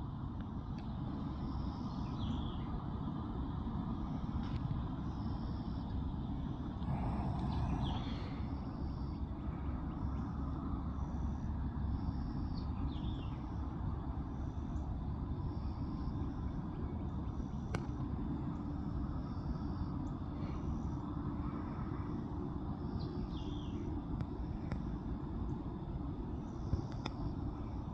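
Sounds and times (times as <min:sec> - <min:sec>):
steady low rumble: 0:00.0 - 0:14.0
small birds chirping: 0:01.4 - 0:02.8, 0:06.7 - 0:10.3, 0:22.9 - 0:23.9.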